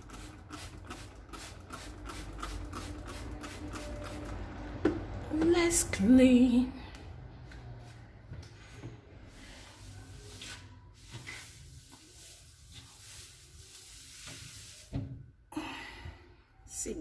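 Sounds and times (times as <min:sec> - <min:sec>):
scrubbing floor: 0:08.7 - 0:15.3.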